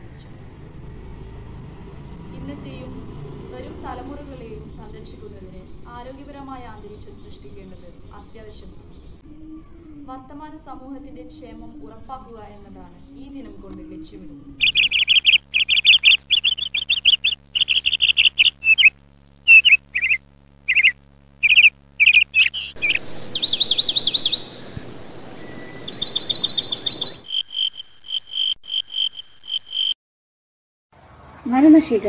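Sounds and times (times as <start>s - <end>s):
short clear bird notes: 14.6s - 18.9s, 19.5s - 27.2s
bird trills: 14.6s - 29.9s
sharp bird chirps: 14.6s - 30.0s
background hiss: 19.5s - 27.2s.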